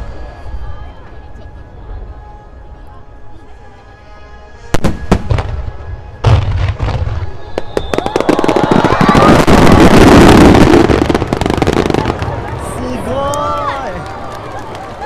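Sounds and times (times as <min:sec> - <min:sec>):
fireworks crackling: 0:04.7 - 0:15.0.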